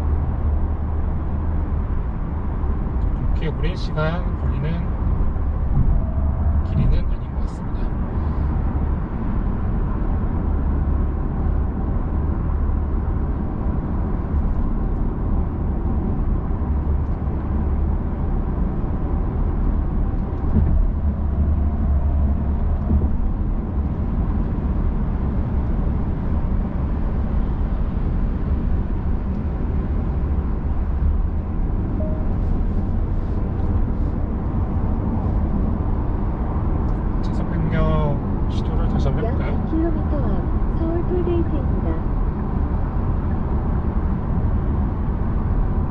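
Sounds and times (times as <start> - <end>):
road and tyre rumble: 0.0 - 45.9.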